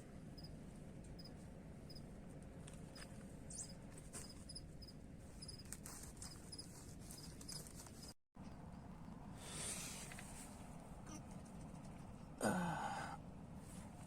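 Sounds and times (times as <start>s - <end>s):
insects chirping: 3.5s - 5.6s.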